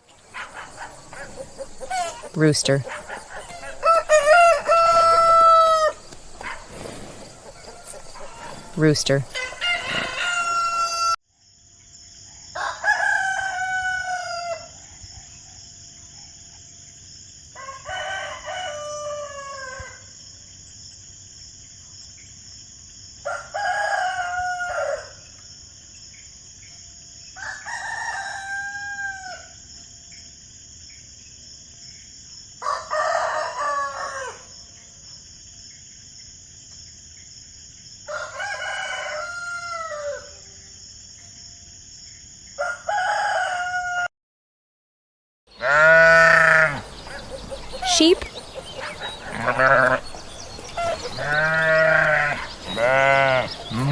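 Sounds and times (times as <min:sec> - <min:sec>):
rooster crowing: 0:00.2 - 0:11.2, 0:12.6 - 0:14.7, 0:17.6 - 0:19.8, 0:38.1 - 0:40.4, 0:42.6 - 0:44.1, 0:45.6 - 0:53.9.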